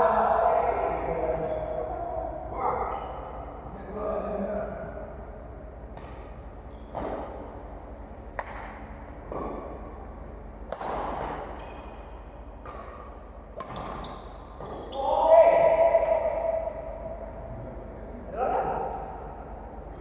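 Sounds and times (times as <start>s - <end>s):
low steady hum: 0.0s - 20.0s
sharp echoing impacts: 12.6s - 17.5s.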